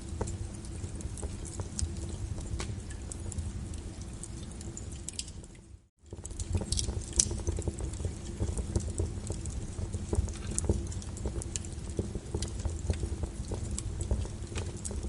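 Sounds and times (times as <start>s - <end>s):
fireplace fire crackling: 0.0s - 15.0s
low rumble of flames: 0.0s - 15.0s
sharp pops and snaps: 6.1s - 15.0s.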